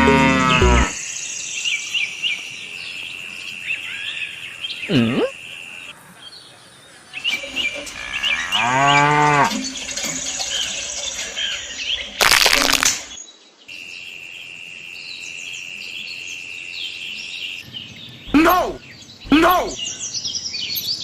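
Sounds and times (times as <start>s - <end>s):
cow mooing: 0.0s - 1.0s, 8.2s - 9.6s
birds chirping: 0.0s - 21.0s.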